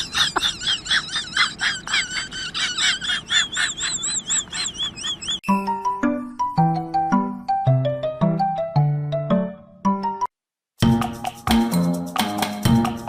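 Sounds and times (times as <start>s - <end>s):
high-pitched animal chirps: 2.8s - 5.8s.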